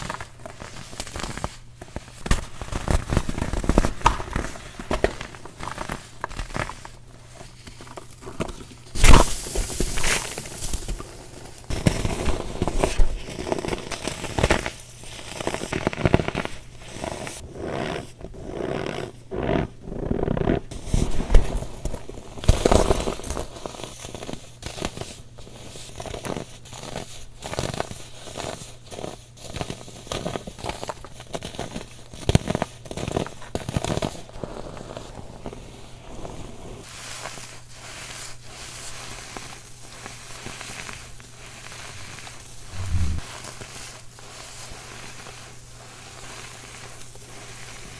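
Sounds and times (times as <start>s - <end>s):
baking soda crunching: 7.8s - 14.7s.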